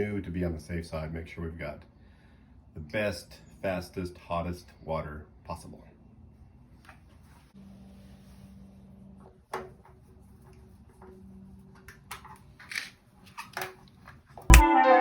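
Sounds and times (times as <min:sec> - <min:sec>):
loud music with heavy beats: 0:14.5 - 0:14.7.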